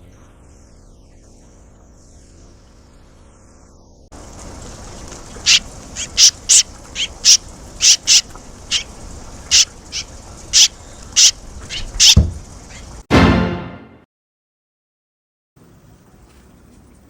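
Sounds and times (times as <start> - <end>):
steady hiss: 0.0 - 13.1
swallows calling: 4.3 - 13.0
loud low thump: 12.0 - 12.5.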